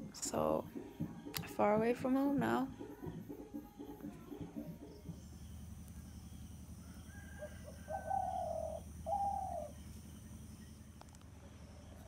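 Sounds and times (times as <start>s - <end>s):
steady low hum: 0.0s - 12.0s
bird calling: 6.3s - 11.1s.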